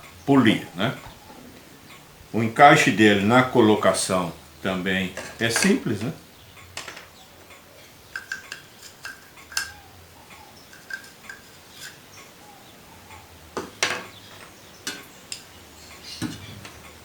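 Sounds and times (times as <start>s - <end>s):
plastic and metal parts clicking: 8.2s - 9.8s.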